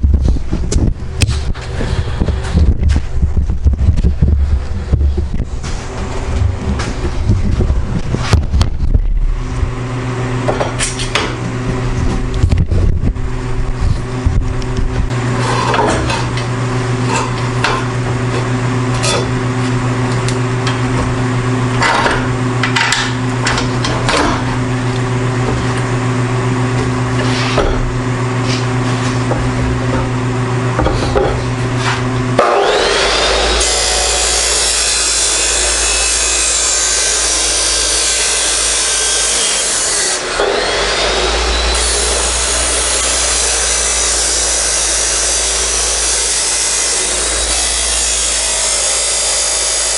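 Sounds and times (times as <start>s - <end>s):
motor hum: 0.0s - 49.9s
cutting tool grinding metal: 32.4s - 49.9s.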